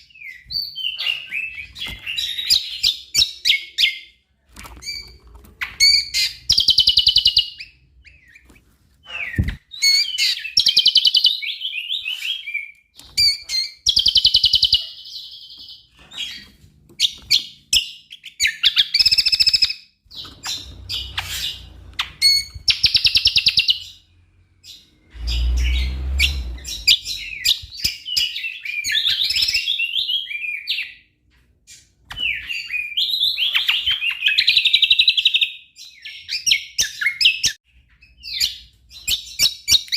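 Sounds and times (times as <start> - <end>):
bird trilling and warbling: 4.6 - 23.9.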